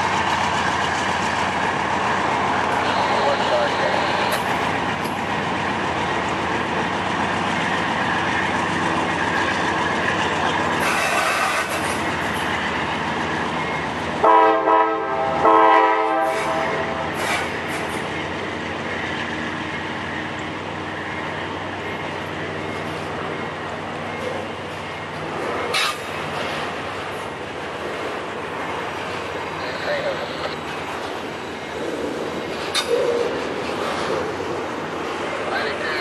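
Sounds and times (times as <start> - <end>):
freight train rumbling past: 0.0 - 36.0
diesel locomotive horn blasts: 14.2 - 17.2.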